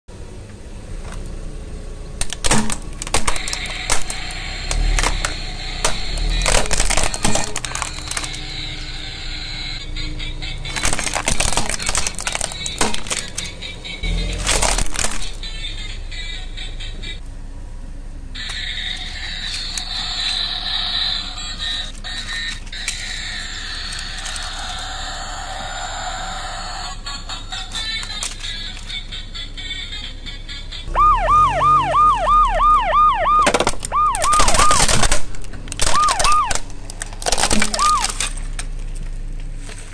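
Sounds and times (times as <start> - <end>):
plastic toy cracking and snapping: 2.2 - 8.5, 10.7 - 13.6, 14.3 - 15.4, 27.7 - 29.0, 33.4 - 39.8
toy electronic alarm tone: 30.9 - 34.9, 35.9 - 36.6, 37.7 - 38.2.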